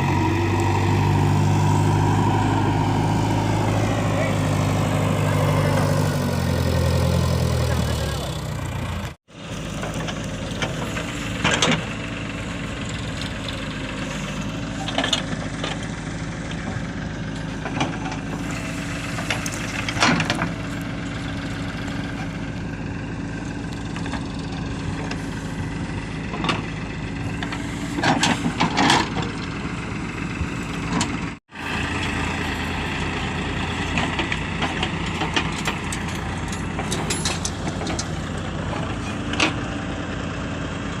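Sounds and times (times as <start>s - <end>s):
diesel engine running: 0.0s - 41.0s
knocks and clanks: 33.8s - 39.6s.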